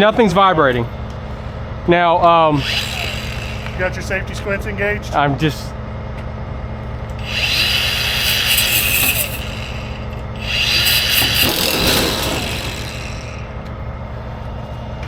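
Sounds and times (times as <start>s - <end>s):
power tool cutting metal: 2.5s - 4.0s, 7.2s - 13.5s.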